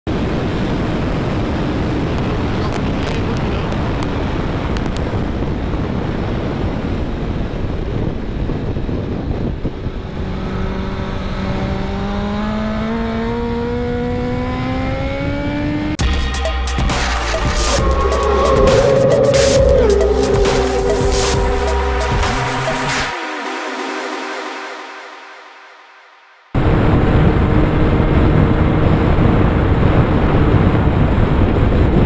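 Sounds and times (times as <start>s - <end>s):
wind rush on helmet: 0.1s - 12.0s, 26.6s - 32.0s
motorcycle engine accelerating: 9.4s - 23.5s
music: 16.0s - 26.6s.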